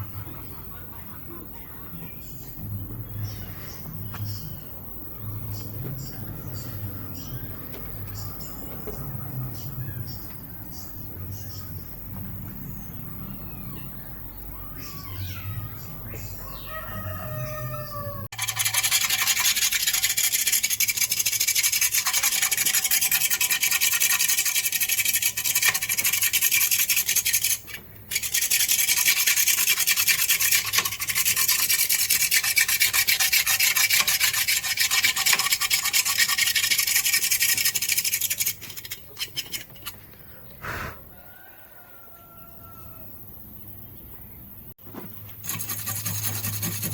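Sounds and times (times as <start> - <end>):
abrasive sanding rubbing: 18.3 - 39.9, 45.4 - 46.9.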